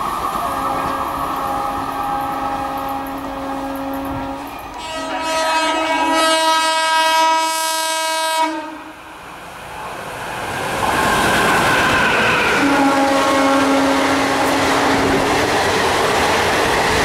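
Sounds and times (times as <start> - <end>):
passing train rumble: 0.0 - 17.0
locomotive horn blast: 0.4 - 9.0, 12.5 - 15.2.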